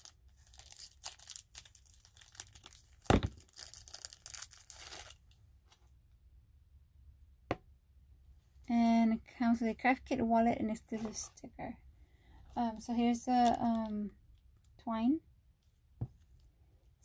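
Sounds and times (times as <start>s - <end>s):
packaging crinkling and tearing: 0.0s - 5.4s.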